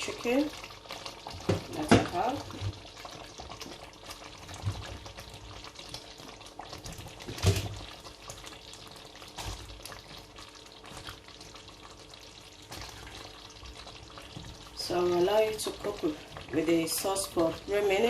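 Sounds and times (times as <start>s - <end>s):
sauce bubbling in a pot: 0.0s - 18.0s.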